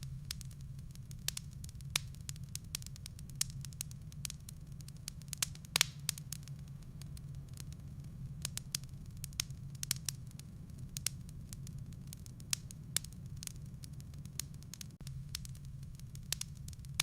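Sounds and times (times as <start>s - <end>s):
fire low rumble: 0.0s - 17.0s
firewood crackling and popping: 0.0s - 17.0s.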